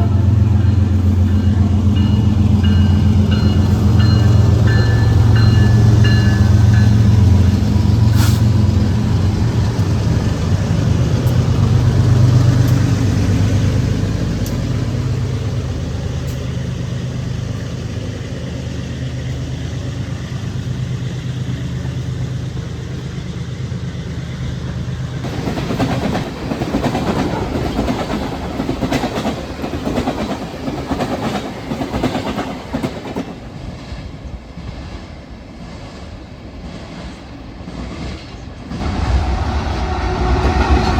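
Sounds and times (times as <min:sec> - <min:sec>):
railcar wheels clacking over joints: 0:00.0 - 0:35.0
diesel locomotive engine drone: 0:00.0 - 0:40.9
train horn chord: 0:38.8 - 0:40.9.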